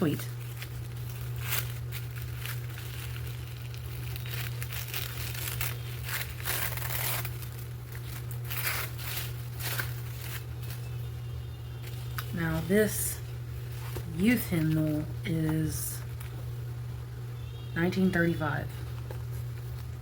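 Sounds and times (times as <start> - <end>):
paper wrapping rustling: 0.0 - 11.1, 13.6 - 15.4, 18.9 - 20.0
steady low hum: 0.0 - 20.0.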